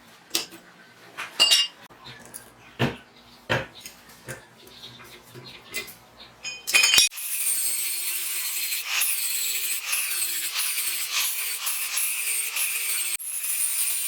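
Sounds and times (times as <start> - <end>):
hand saw rasping: 7.1 - 14.0.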